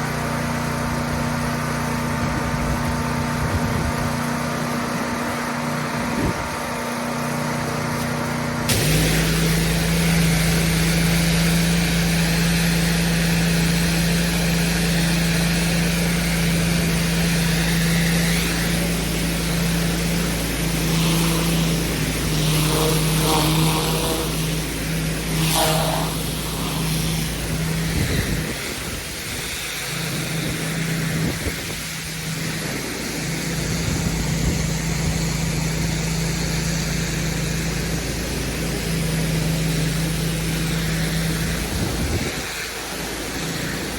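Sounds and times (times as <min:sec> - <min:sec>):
pressure washer engine running: 0:00.0 - 0:43.9
water spray hissing: 0:08.0 - 0:43.9.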